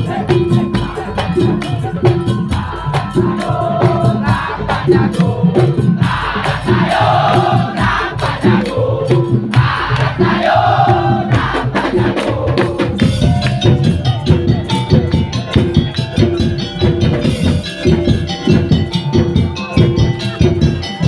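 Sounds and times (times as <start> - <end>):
group chanting: 0.0 - 14.4
drums and wooden percussion: 0.0 - 21.0
repeating pitched melody: 0.0 - 21.0.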